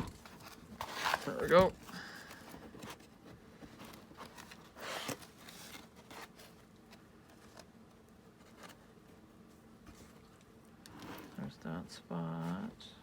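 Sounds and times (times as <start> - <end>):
paper pages rustling: 0.0 - 7.7.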